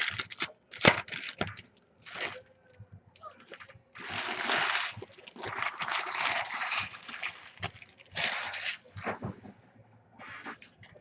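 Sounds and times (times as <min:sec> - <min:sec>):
foil wrappers tearing and crinkling: 0:00.0 - 0:02.5, 0:04.0 - 0:08.9.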